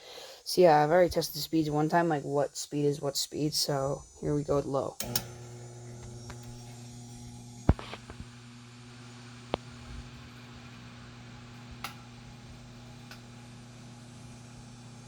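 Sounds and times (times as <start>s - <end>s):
table fan motor hum: 4.4s - 15.0s
sharp clicks: 5.0s - 5.4s.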